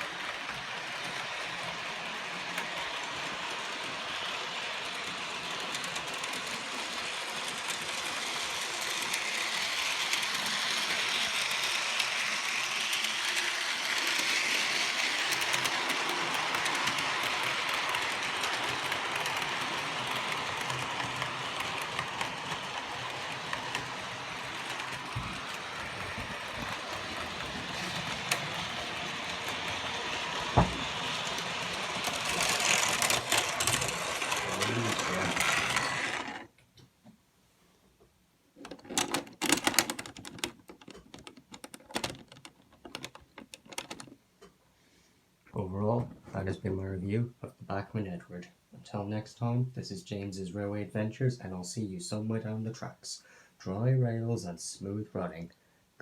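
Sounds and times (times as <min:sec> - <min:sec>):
model train motor whirring: 0:00.0 - 0:36.5.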